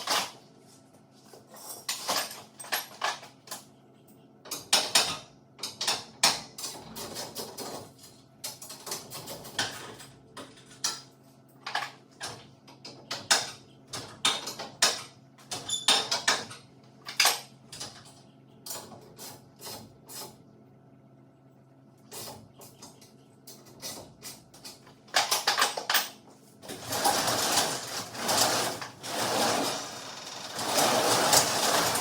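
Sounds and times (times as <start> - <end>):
garage door rumbling and rattling: 26.6 - 32.0.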